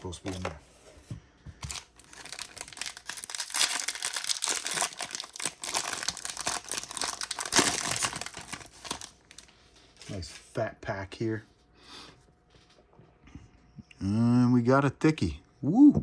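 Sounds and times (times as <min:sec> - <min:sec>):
wrapper tearing and crinkling: 0:01.7 - 0:09.5.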